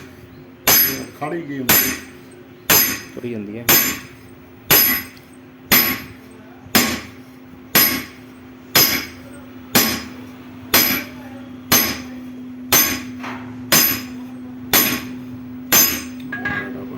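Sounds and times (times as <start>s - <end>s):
hammer ringing on metal: 0.0s - 16.8s
steady hum: 0.0s - 16.9s.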